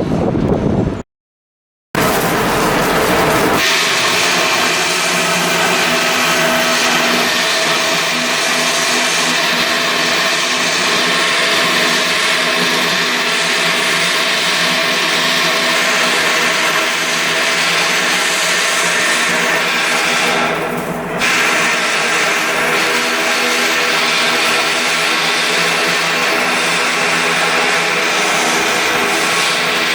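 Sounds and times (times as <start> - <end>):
power tool running: 2.0 - 29.9.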